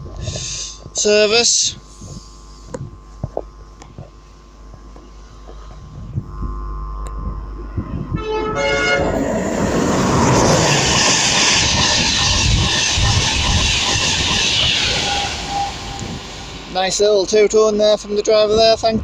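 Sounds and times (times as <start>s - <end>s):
two-tone train horn: 8.2s - 9.3s, 14.8s - 16.6s
train rushing past: 8.2s - 17.6s.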